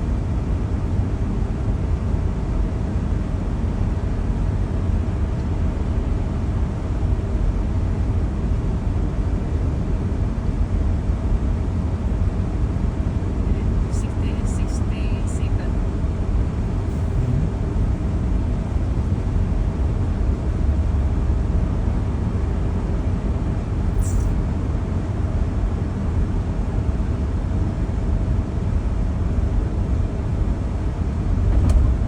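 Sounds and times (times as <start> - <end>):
faint hum: 13.3 - 20.6
low rumble: 16.4 - 19.5.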